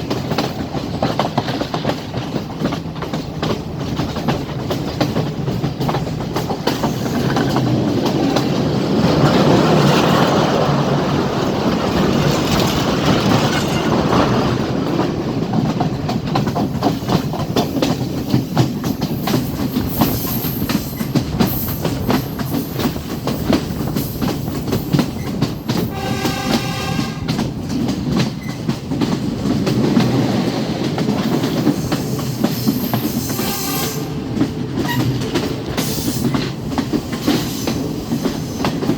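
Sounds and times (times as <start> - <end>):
train wheels clattering: 0.0 - 38.9
train horn: 25.9 - 27.4, 33.2 - 35.2.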